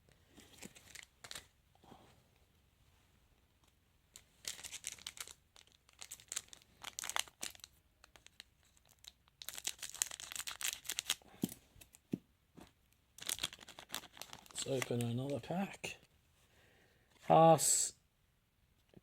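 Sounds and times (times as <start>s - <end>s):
foil wrapper crinkling and tearing: 4.4s - 12.0s, 13.2s - 15.5s.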